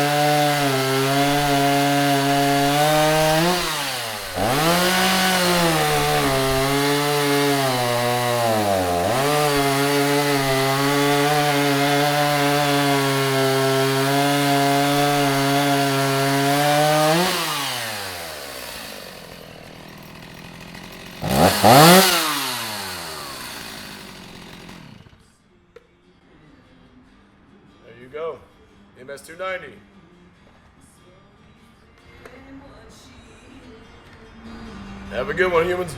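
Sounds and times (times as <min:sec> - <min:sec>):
chainsaw running: 0:00.0 - 0:25.2.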